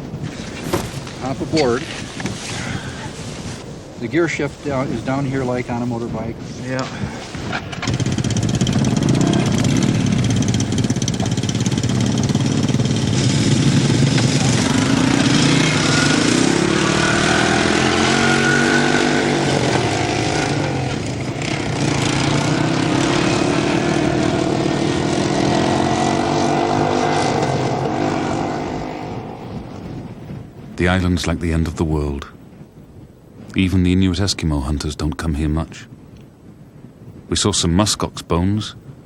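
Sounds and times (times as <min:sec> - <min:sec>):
all-terrain vehicle engines: 0:06.6 - 0:29.5.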